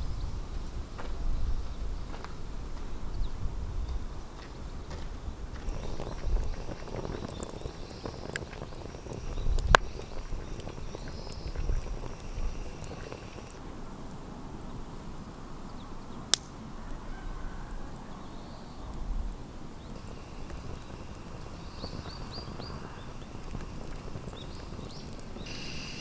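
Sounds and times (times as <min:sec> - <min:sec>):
campfire crackling: 0:05.6 - 0:14.2, 0:19.8 - 0:26.0.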